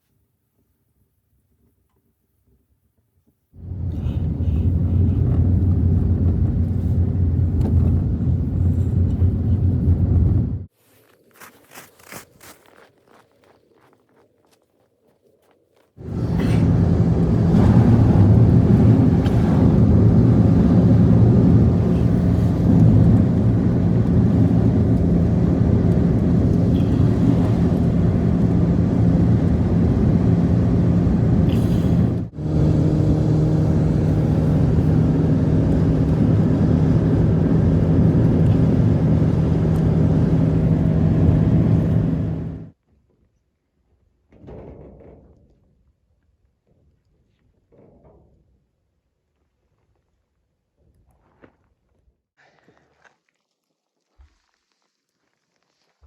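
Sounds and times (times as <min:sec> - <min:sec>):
vehicle engine humming: 0:03.6 - 0:10.7, 0:16.0 - 0:42.7.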